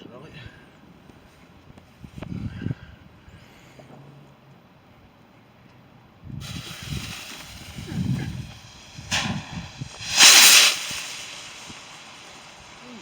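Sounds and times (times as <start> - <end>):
wind rumble on microphone: 1.7 - 3.3, 6.2 - 11.9
firework rocket hissing: 6.3 - 13.0
firework whooshing burst: 6.3 - 13.0.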